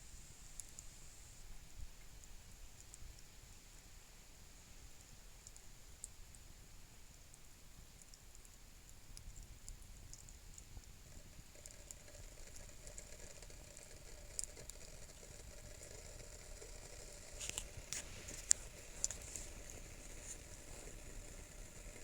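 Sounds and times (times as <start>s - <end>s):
campfire crackling: 5.0s - 22.0s
fire snapping: 9.1s - 22.0s.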